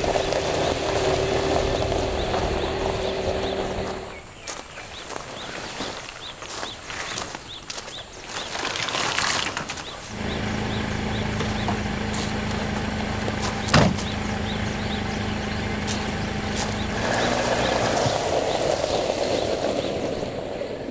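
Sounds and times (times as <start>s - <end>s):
vehicle engine starting and idling: 0.0s - 4.4s, 10.0s - 20.7s
rustling and shuffling: 0.3s - 18.7s.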